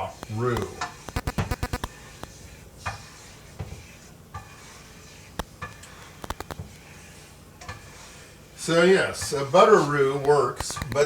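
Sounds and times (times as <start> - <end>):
utensil knocking and scraping in pan: 2.2 - 6.7, 7.6 - 8.2.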